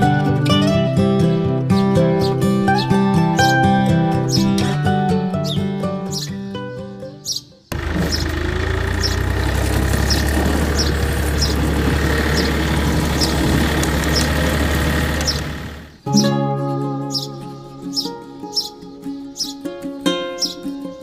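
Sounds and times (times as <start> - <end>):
motor running with low hum: 7.7 - 16.0.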